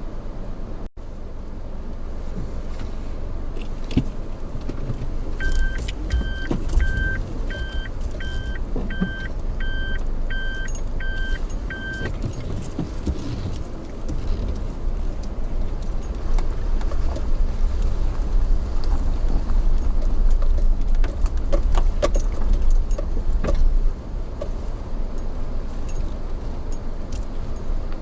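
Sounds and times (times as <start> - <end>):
vehicle engine rumble: 0.0 - 28.0
short electronic beeps: 5.4 - 12.1.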